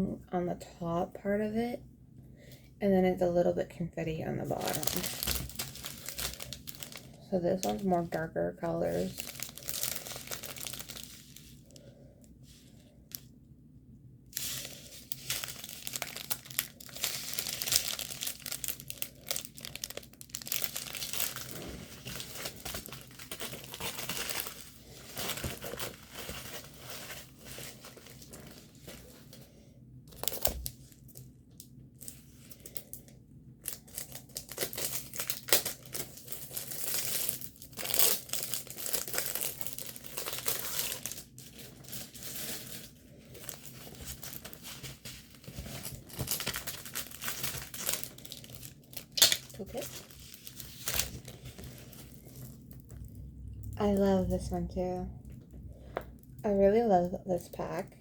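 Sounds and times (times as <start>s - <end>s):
plastic packaging crinkling: 4.4s - 11.9s, 14.3s - 29.4s, 30.1s - 33.0s, 33.6s - 54.4s.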